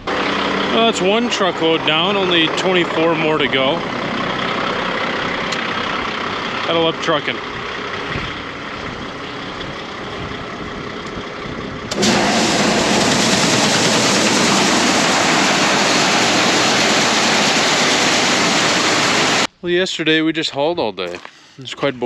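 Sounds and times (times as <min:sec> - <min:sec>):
loud rushing noise: 0:00.0 - 0:06.8, 0:11.8 - 0:19.5
truck engine running: 0:00.0 - 0:19.5.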